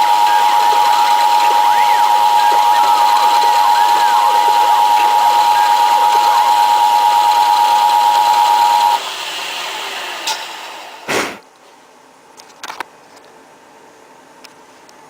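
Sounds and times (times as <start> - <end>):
milling machine whining: 0.0 - 11.1
loud thump: 11.1 - 11.4.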